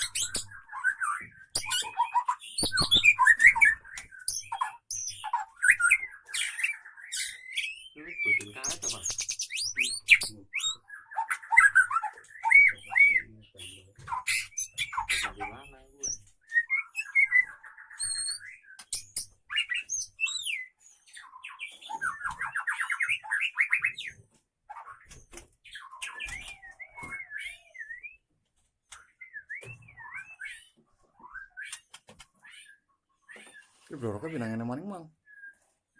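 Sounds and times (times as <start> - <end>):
bird singing whistled phrases: 0.0 - 24.0, 25.8 - 28.2, 29.0 - 31.8, 35.2 - 35.7
bird sharp clicks and chips: 1.6 - 5.1, 18.8 - 19.3.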